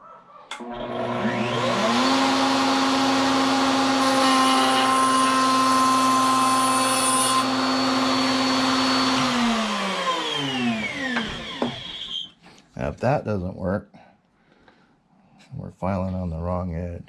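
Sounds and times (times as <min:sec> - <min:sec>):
electric wood router running: 0:00.6 - 0:12.3.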